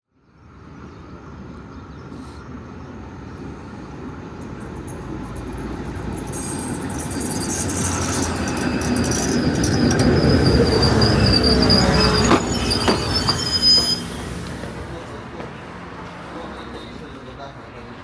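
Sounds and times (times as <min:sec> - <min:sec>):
tram rumble and wheel clicks: 0:00.4 - 0:18.0
high wheel squeal: 0:05.9 - 0:15.4.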